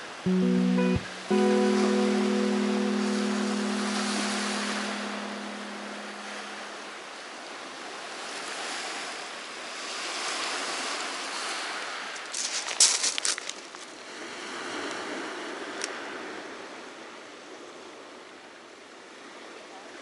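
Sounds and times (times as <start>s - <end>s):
held musical note: 0.3s - 7.0s
surf on pebble beach: 8.4s - 16.4s.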